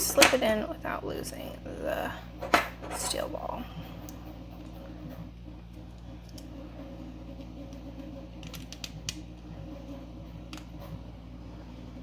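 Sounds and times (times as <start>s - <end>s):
steady low hum: 0.0s - 12.0s
plastic parts clicking: 8.4s - 9.2s.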